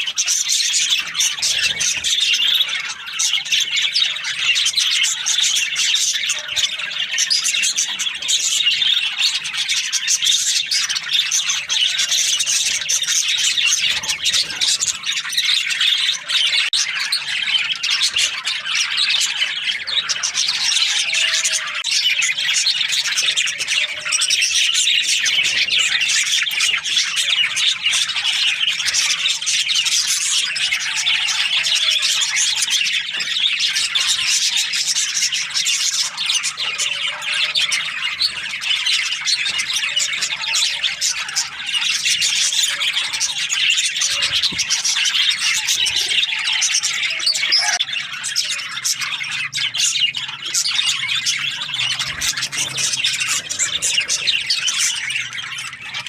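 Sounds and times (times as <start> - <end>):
budgerigars chattering: 0.0 - 56.0.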